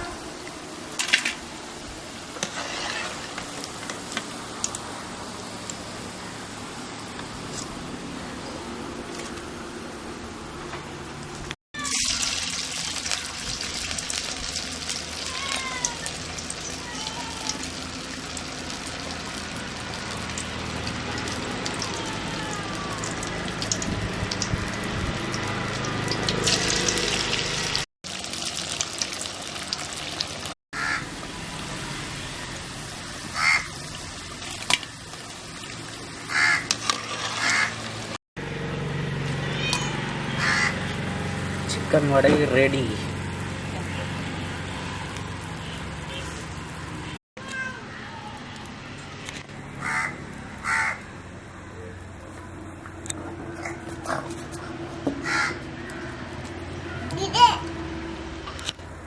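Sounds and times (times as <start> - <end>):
hot oil sizzling: 0.4 - 7.4, 11.4 - 38.2.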